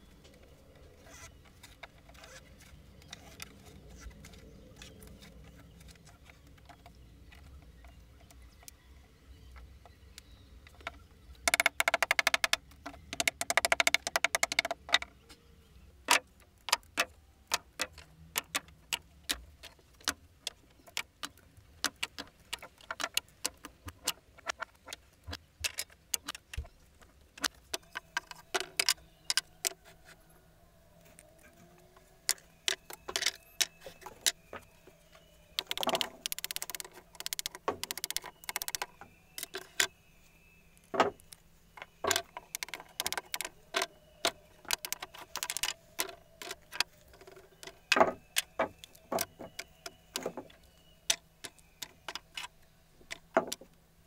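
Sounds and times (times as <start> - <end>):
sharp clicks and knocks: 9.5 - 15.2, 16.1 - 30.0, 31.1 - 39.9, 40.8 - 53.8
faint steady hum: 14.8 - 54.0.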